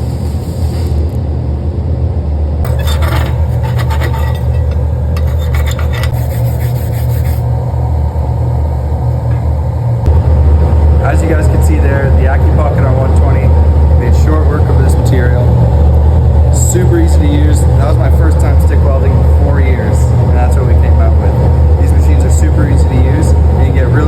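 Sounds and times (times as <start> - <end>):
welding arc crackling: 0.0 - 1.4
loud steady low hum: 0.0 - 24.0.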